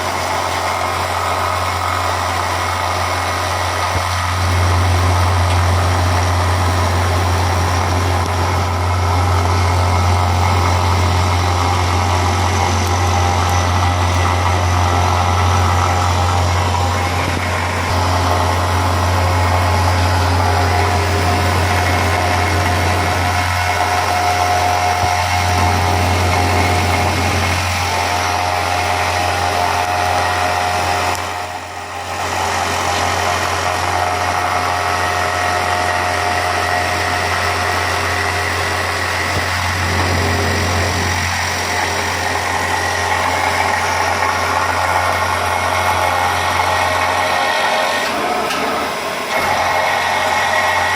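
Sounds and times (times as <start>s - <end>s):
milling machine humming: 0.0s - 50.9s.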